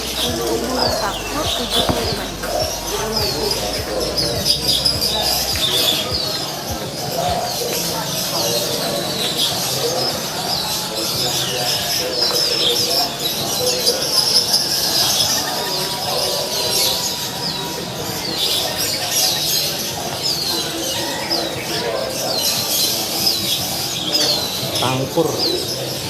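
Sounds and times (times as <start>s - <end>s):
caged songbirds chirping: 0.0s - 26.0s
murmur of people talking: 0.0s - 26.0s.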